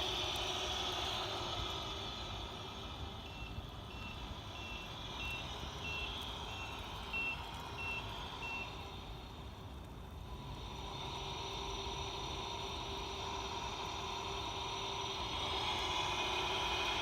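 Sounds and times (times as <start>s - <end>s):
low steady rumble: 0.0s - 17.0s
high reversing beeps: 3.2s - 8.8s.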